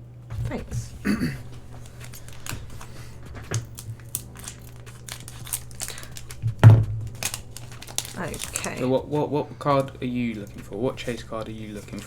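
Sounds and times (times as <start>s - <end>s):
foil wrapper crinkling: 0.4s - 12.0s
thump: 6.4s - 7.1s.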